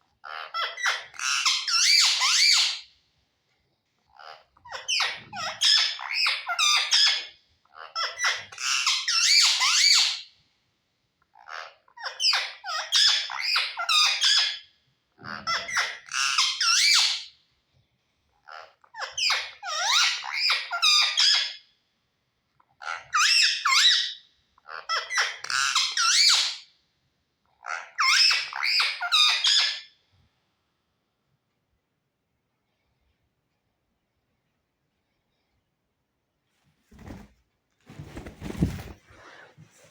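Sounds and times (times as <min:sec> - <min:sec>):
parrot chattering and squawking: 0:00.2 - 0:02.8, 0:04.1 - 0:10.2, 0:11.3 - 0:14.6, 0:15.2 - 0:17.3, 0:18.4 - 0:21.6, 0:22.7 - 0:26.7, 0:27.5 - 0:29.9.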